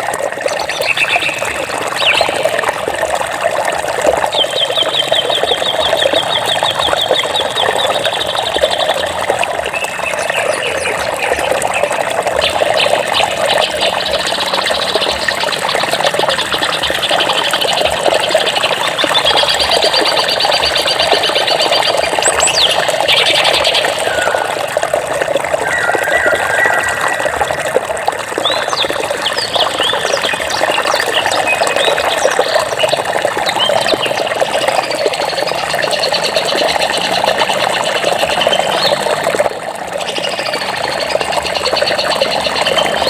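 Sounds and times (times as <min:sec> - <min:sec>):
flowing water: 0:00.0 - 0:43.0
birds trilling: 0:19.2 - 0:32.9
bird rising call: 0:23.4 - 0:24.7, 0:25.5 - 0:30.0.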